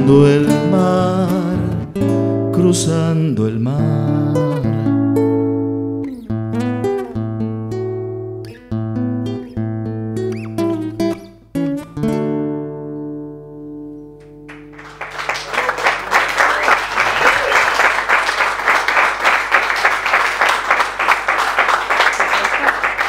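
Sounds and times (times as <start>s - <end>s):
acoustic guitar strumming: 0.0s - 14.8s
audience applause: 14.5s - 23.0s.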